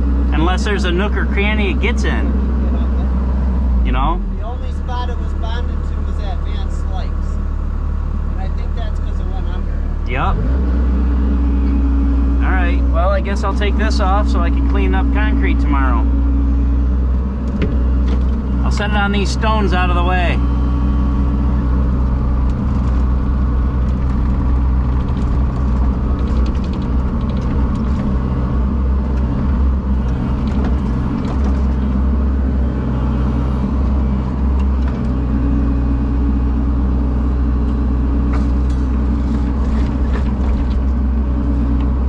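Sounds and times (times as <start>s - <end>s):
large engine running steadily: 0.0s - 42.0s.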